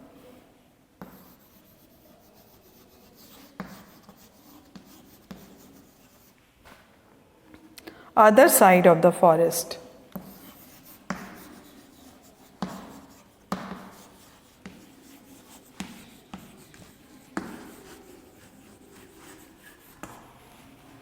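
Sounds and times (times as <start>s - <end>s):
writing taps on a board: 1.0s - 1.4s, 3.2s - 6.0s, 10.1s - 20.2s.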